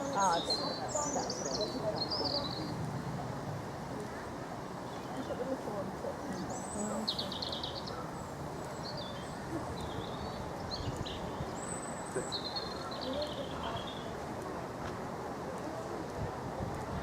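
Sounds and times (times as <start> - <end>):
small birds chirping: 0.0 - 2.9, 4.2 - 14.2
faint voices: 0.0 - 17.0
outdoor background noise: 0.0 - 17.0.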